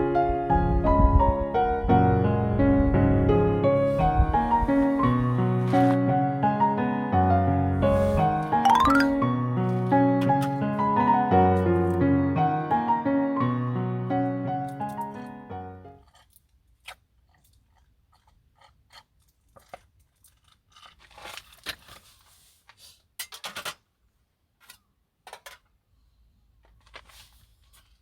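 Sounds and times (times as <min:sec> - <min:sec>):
piano music: 0:00.0 - 0:16.0
crinkly rustling: 0:03.8 - 0:06.1, 0:18.9 - 0:23.0, 0:26.6 - 0:28.0.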